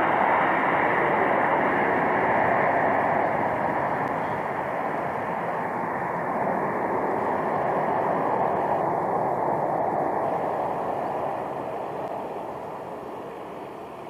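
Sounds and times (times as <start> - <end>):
jet engine rushing: 0.0 - 14.0.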